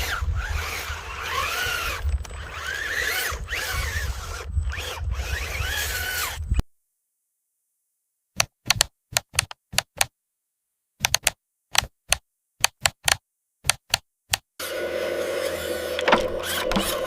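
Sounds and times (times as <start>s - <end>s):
loud mechanical running: 0.0s - 6.4s.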